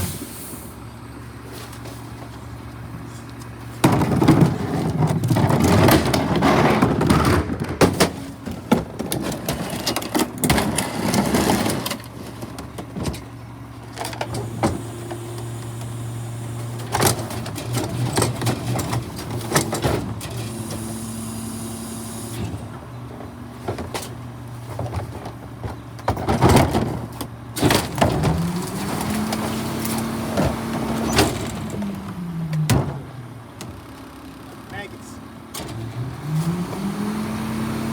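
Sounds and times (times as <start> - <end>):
vehicle engine running: 0.0 - 37.9
knocks and clatter: 3.8 - 13.3, 22.6 - 31.9.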